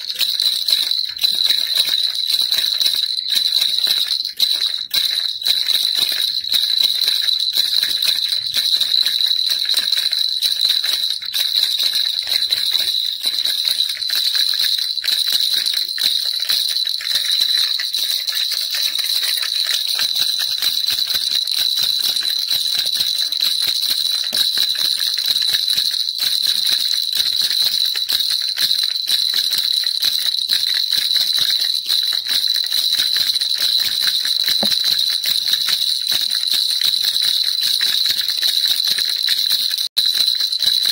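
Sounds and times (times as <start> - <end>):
baby rattle jingling: 0.0 - 40.9.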